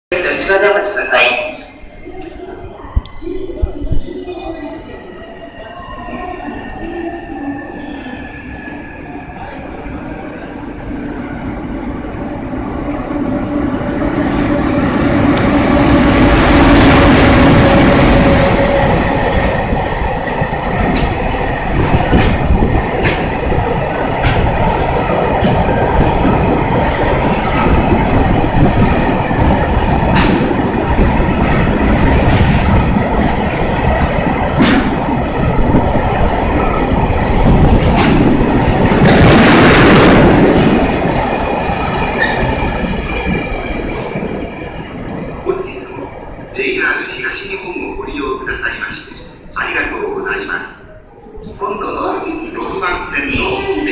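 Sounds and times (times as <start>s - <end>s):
electric locomotive humming past: 4.2s - 46.6s.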